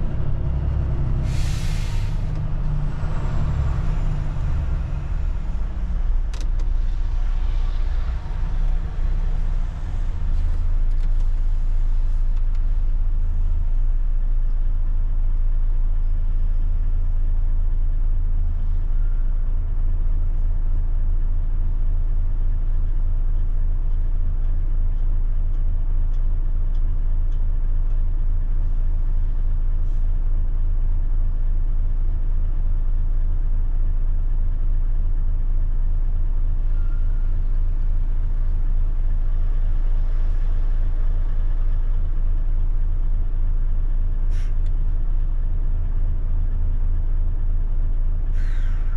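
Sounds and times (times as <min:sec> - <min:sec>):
large diesel engine running: 0:00.0 - 0:48.9.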